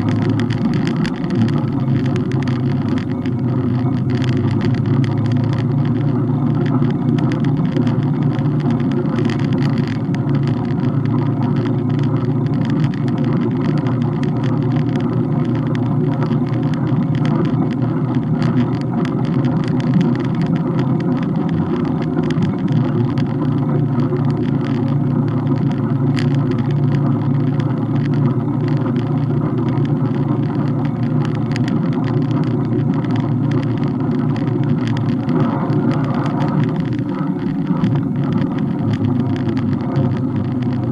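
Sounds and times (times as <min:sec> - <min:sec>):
small ticks and rattles: 0:00.0 - 0:40.9
wind and road noise: 0:00.0 - 0:40.9.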